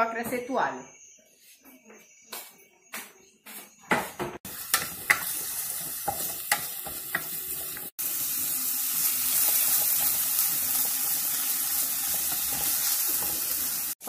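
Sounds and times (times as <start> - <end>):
onion sizzling in frying pan: 4.4 - 14.0.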